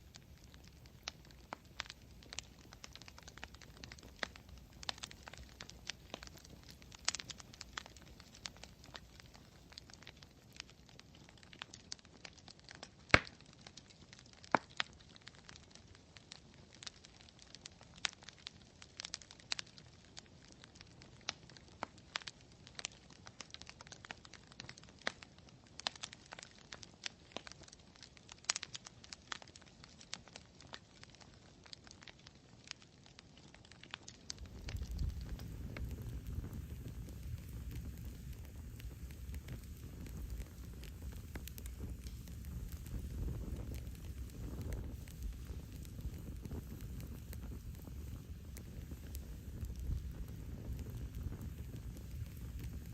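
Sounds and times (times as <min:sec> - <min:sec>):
soft fire hiss: 0:00.0 - 0:16.0, 0:33.9 - 0:52.9
campfire crackling and popping: 0:00.0 - 0:52.9.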